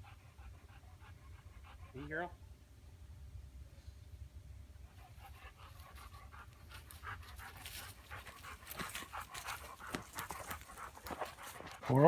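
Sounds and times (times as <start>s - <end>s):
dog panting: 0.0s - 2.4s, 4.9s - 12.0s.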